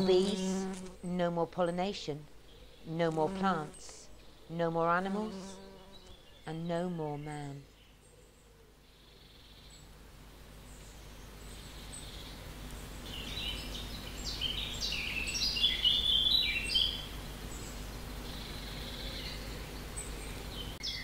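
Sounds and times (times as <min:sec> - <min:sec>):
low outdoor background: 0:00.0 - 0:21.0
songbird singing: 0:00.0 - 0:21.0.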